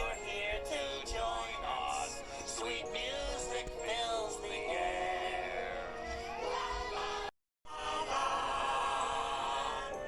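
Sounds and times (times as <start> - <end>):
group singing with instruments: 6.5 - 10.0.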